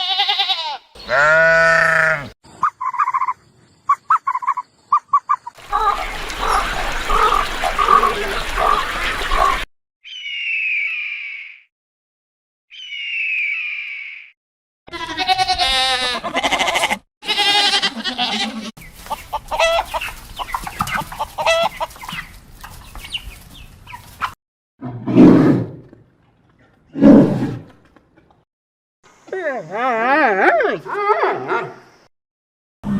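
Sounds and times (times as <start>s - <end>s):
high falling animal calls: 1.0s - 11.7s, 12.7s - 14.4s
chickens clucking: 4.1s - 9.7s, 18.8s - 24.4s.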